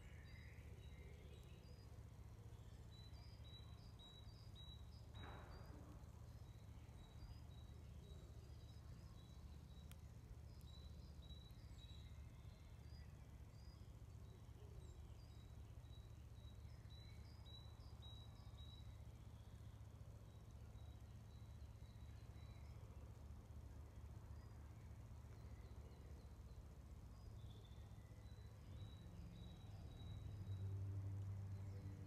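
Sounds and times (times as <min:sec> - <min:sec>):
faint bird chirping: 0:00.0 - 0:32.0.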